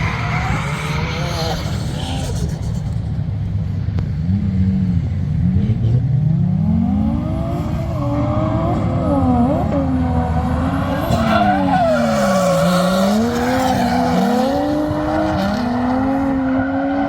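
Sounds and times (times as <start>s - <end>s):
car engine revving: 4.0s - 17.0s.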